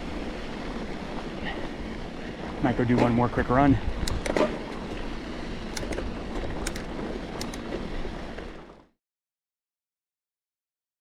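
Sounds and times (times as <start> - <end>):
light clicks: 4.0 - 4.4, 5.7 - 6.0, 6.6 - 7.6.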